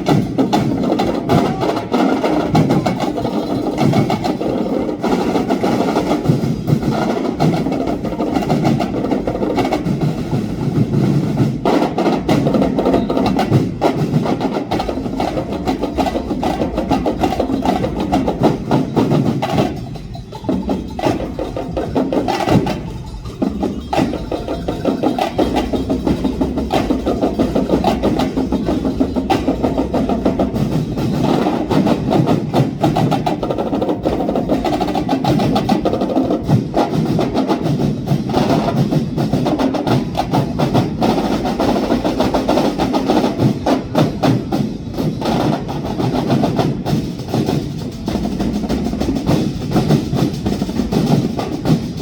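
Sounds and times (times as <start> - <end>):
drum ensemble playing: 0.0 - 52.0.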